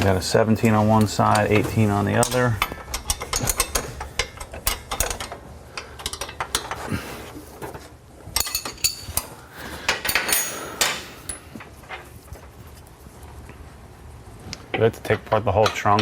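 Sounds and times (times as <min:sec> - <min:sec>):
metal hand tools clinking: 0:00.6 - 0:07.0, 0:08.4 - 0:11.5
ringing metal clanks: 0:01.0 - 0:06.8, 0:10.0 - 0:11.4.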